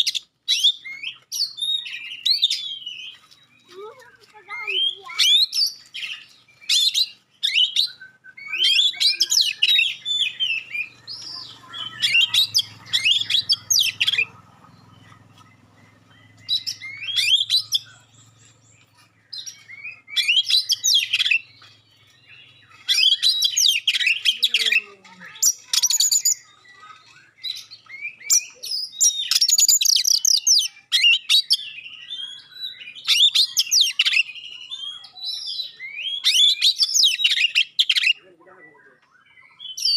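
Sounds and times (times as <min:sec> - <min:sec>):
bird singing sharp high phrases: 0:00.0 - 0:39.9.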